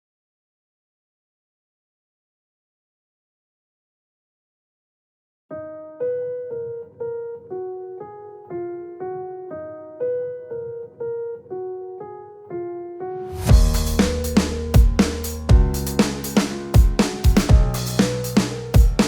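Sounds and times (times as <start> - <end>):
electric piano melody: 5.5 - 19.0
electronic beat with heavy drums: 13.5 - 19.0.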